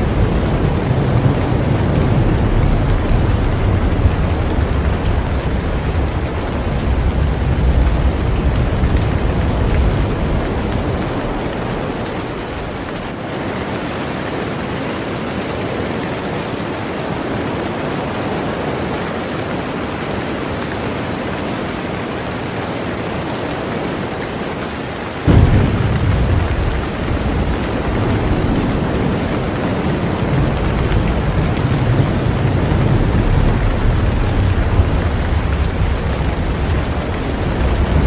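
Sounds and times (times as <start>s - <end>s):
deep low rumble: 0.0s - 12.9s, 25.3s - 29.5s
heavy rain on a boat: 0.0s - 38.0s.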